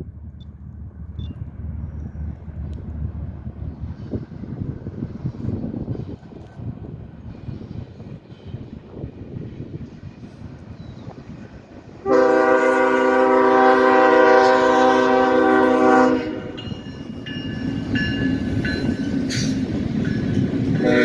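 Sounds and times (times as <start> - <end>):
train rumbling: 0.0 - 21.0
locomotive horn blast: 12.0 - 16.6, 20.8 - 21.0.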